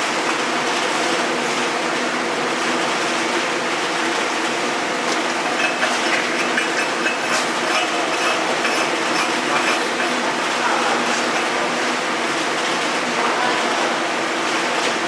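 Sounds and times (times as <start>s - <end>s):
welding machine hum: 0.0s - 15.0s
welding arc crackle: 5.2s - 12.9s.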